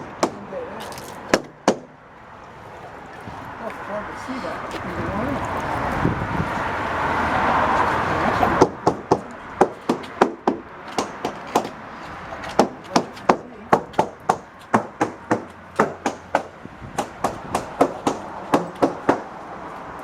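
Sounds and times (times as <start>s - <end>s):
hammer tapping fiberglass hull: 1.3s - 1.9s, 8.6s - 11.8s, 12.5s - 19.3s.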